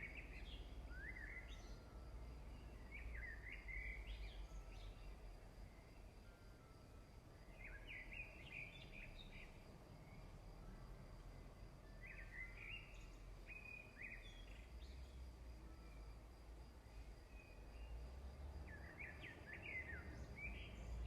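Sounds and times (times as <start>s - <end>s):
songbird chirps: 0.0s - 21.0s.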